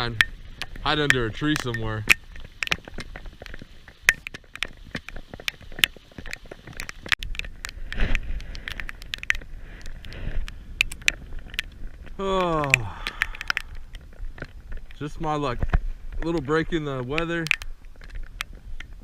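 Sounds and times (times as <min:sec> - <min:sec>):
raindrops tapping near microphone: 0:00.0 - 0:19.0
heavy rain: 0:11.2 - 0:16.8.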